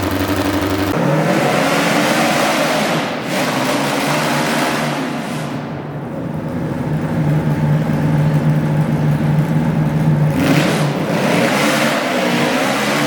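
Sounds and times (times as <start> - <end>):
tractor engine revving: 0.0 - 3.8.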